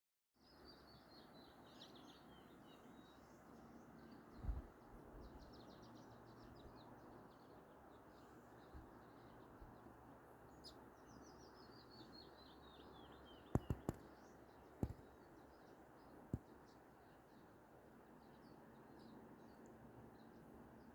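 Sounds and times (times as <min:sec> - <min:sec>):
songbirds singing: 0:00.4 - 0:20.9
sharp knocks: 0:13.5 - 0:14.0, 0:14.8 - 0:15.0.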